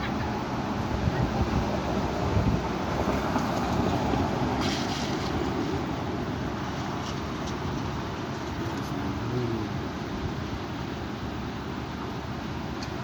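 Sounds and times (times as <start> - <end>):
strong wind buffeting microphone: 0.0 - 4.6.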